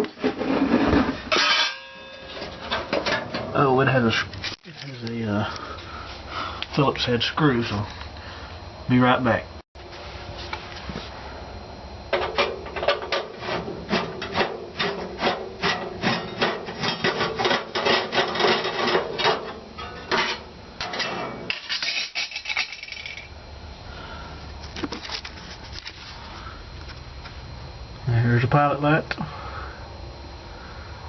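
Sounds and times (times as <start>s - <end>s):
metal cover scraping and rattling: 0.0s - 3.7s, 12.1s - 23.3s.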